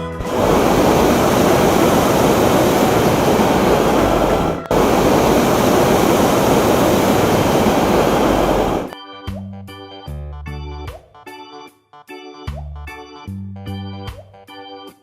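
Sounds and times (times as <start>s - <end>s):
propane burner roaring: 0.0s - 9.0s.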